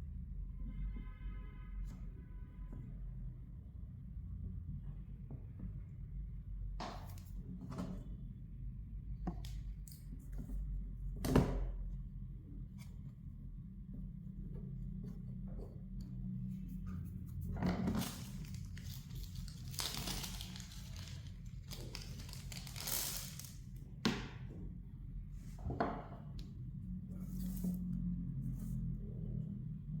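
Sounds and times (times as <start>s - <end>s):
scratchy tearing and crinkling: 17.9s - 23.6s.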